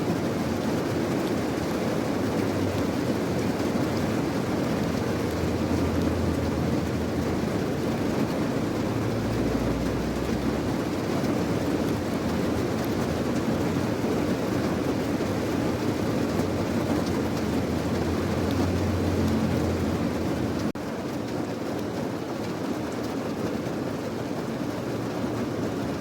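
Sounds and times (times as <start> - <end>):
steady rain: 0.0 - 26.0
low rumble: 4.7 - 14.7, 16.2 - 20.7.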